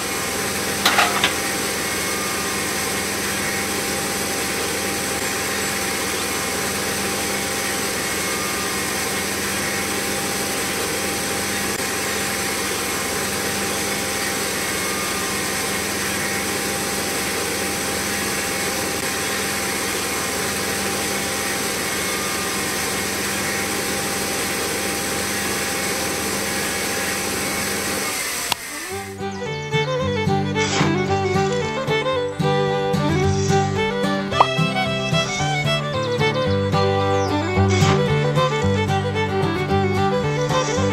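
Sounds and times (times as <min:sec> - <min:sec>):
motor running with whine: 0:00.0 - 0:40.9
music: 0:28.9 - 0:40.9.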